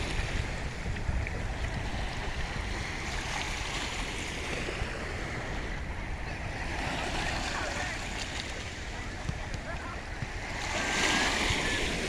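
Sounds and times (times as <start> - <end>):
sea waves washing in: 0.0 - 12.0
wind rumble on microphone: 0.0 - 12.0.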